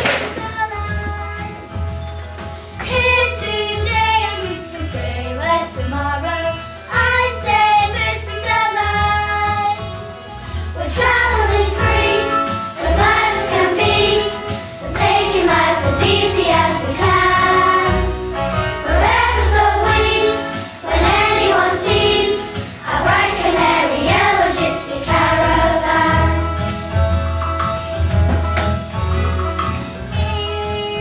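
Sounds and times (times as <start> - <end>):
backing music with bass line: 0.0 - 31.0
children singing: 10.8 - 18.1, 18.9 - 26.4.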